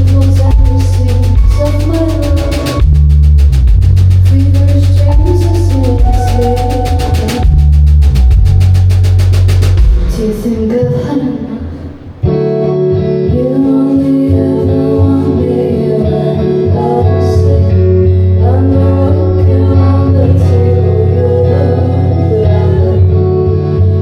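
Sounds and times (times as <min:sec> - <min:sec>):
live band playing: 0:00.0 - 0:10.5
steady bass: 0:00.0 - 0:10.8.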